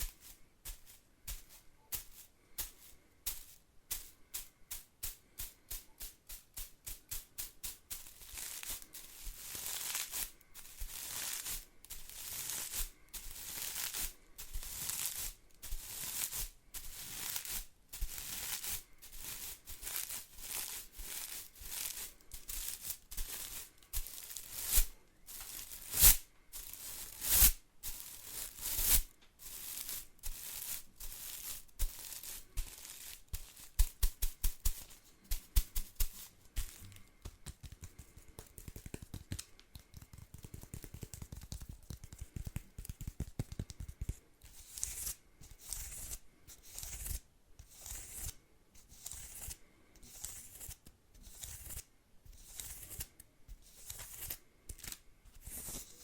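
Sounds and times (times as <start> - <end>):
broom bristles sweeping: 0.0 - 36.8.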